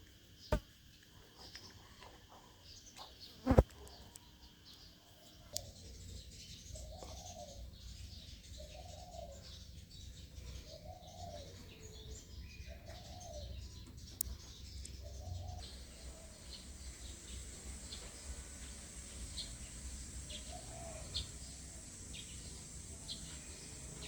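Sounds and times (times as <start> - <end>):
faint high chirping: 1.4 - 24.0
bird low call: 15.2 - 24.0
low hum: 15.6 - 24.0.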